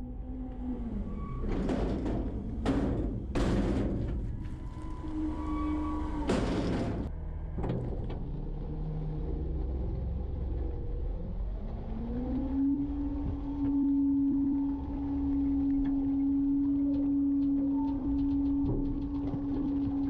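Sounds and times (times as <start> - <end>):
hydraulic packer whine: 0.0 - 9.8
garbage truck engine running: 0.7 - 8.7.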